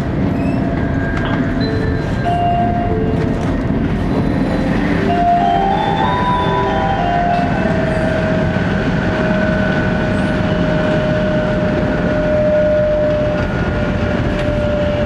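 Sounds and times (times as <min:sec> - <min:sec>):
train cabin rumble and rush: 0:00.0 - 0:15.0
train whine: 0:00.0 - 0:15.0.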